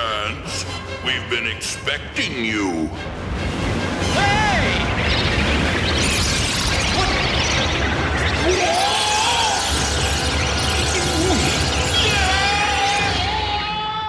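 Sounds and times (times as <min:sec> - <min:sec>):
warbling tones: 0:04.0 - 0:13.3
cartoon music: 0:04.0 - 0:14.0.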